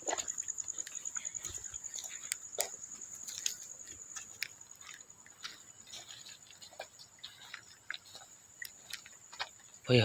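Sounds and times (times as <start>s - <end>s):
crickets trilling: 0.0s - 10.0s
footsteps through dry undergrowth: 0.0s - 10.0s.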